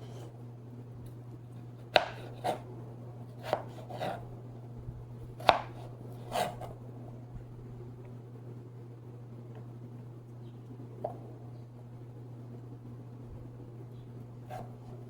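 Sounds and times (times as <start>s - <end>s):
knife chopping potato: 1.6s - 4.4s, 5.3s - 6.8s, 14.4s - 15.0s.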